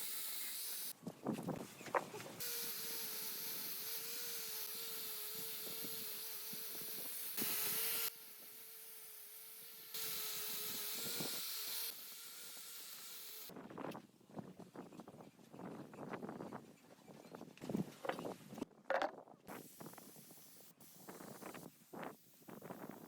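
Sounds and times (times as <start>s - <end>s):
air tool hissing: 2.4s - 13.5s.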